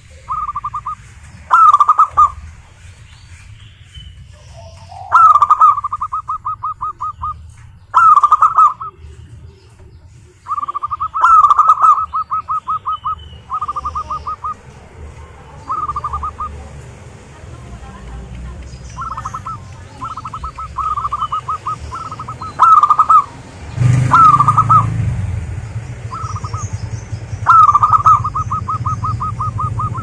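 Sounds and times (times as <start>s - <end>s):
doves cooing: 0.0s - 2.6s, 4.2s - 30.0s.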